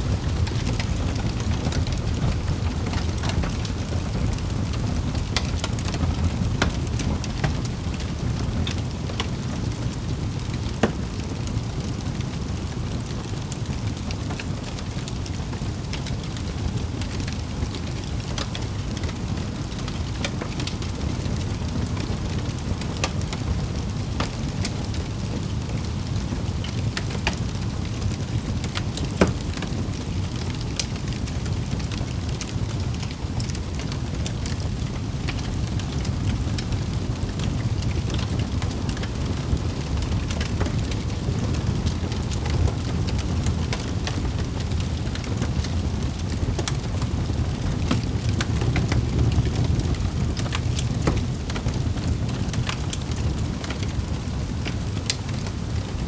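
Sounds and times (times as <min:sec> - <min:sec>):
wood fire crackling in fireplace: 0:00.0 - 0:56.0.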